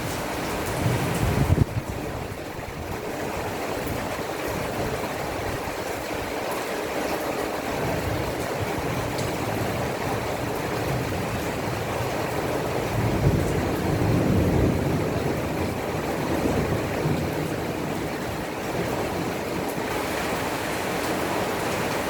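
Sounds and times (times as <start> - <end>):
low thunder rumble: 0.0 - 3.0, 12.8 - 20.0
heavy rain pouring: 0.0 - 22.0.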